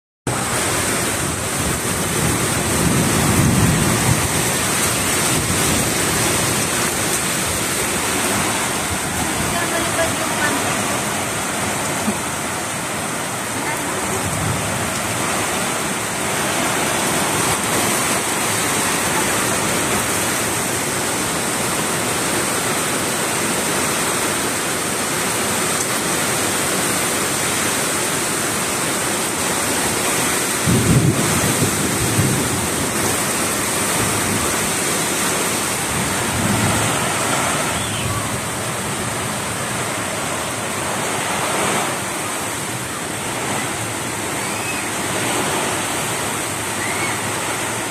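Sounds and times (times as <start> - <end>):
thunder rumbles: 0.3 - 10.5, 13.9 - 21.6, 29.6 - 39.9
heavy rain pouring: 0.3 - 47.9.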